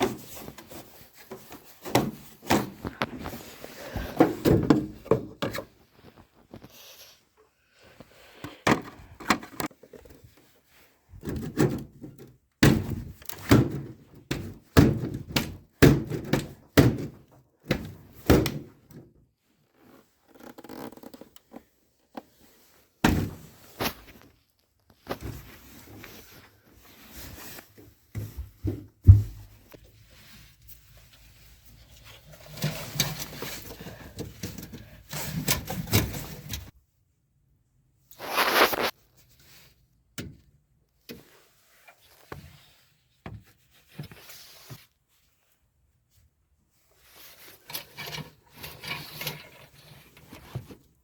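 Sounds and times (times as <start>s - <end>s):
knocks and thuds: 28.6s - 29.6s.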